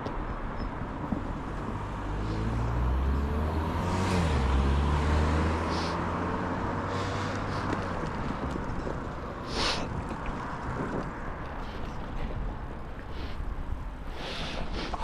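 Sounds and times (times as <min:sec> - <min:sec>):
rushing road and wind noise: 0:00.0 - 0:15.0
vehicle engine passing by: 0:01.8 - 0:09.3.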